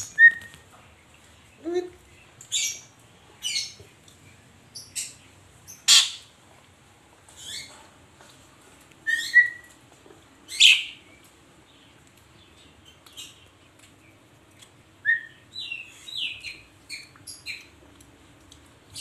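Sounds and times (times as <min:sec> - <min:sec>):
starling calling: 0:04.8 - 0:06.3, 0:09.1 - 0:09.7.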